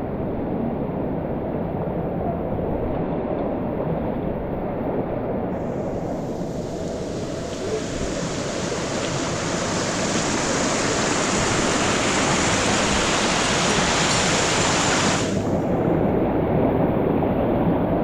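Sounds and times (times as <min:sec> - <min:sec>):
waterfall rushing water: 0:05.6 - 0:16.3.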